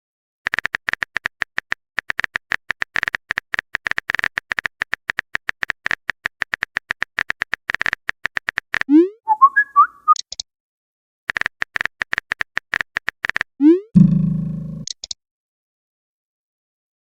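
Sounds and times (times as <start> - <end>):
keyboard typing clicks: 0.5 - 9.0, 11.3 - 14.1, 14.7 - 15.2.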